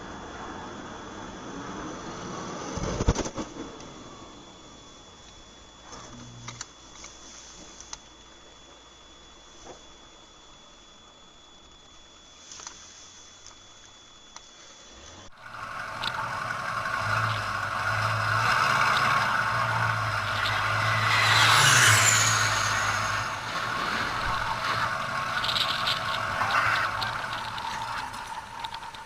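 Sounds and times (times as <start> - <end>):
falling high whine: 14.8 - 29.0
aircraft passing: 15.4 - 29.0.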